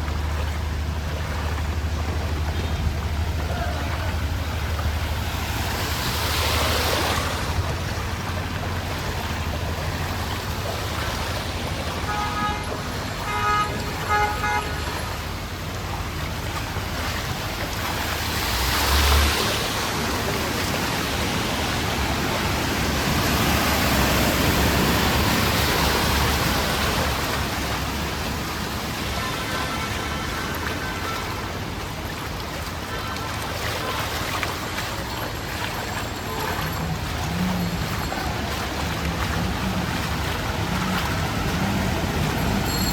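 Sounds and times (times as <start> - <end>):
traffic and water noise: 0.0 - 42.9
vehicles pushing through water: 0.0 - 42.9
vehicle horn tooting: 12.0 - 15.1, 29.0 - 31.6, 32.9 - 34.1.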